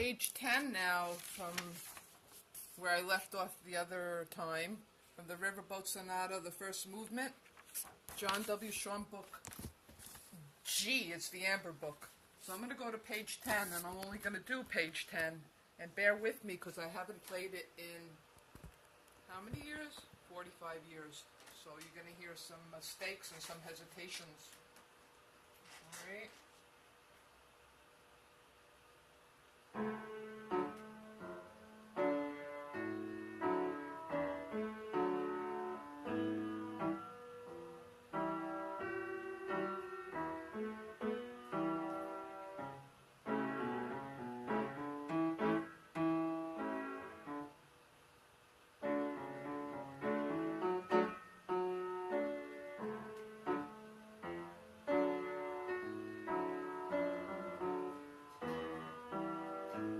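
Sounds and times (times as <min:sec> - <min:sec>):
out of tune piano playing: 0:29.8 - 0:47.6, 0:48.8 - 0:59.9.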